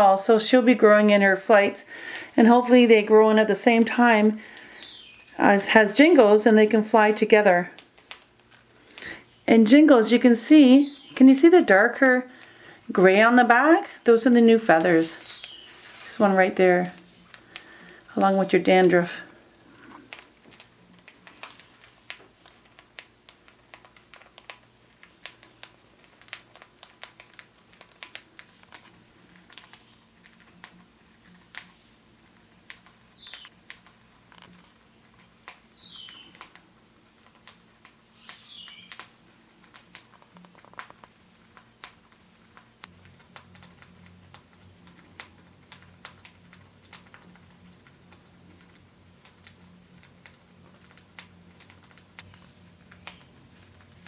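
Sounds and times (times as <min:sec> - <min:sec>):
birds cracking seeds: 0:00.1 - 0:54.0
soft falling bird chirps: 0:04.5 - 0:05.4, 0:10.7 - 0:11.3, 0:14.6 - 0:16.2, 0:33.0 - 0:33.6, 0:35.7 - 0:36.6, 0:38.0 - 0:39.1.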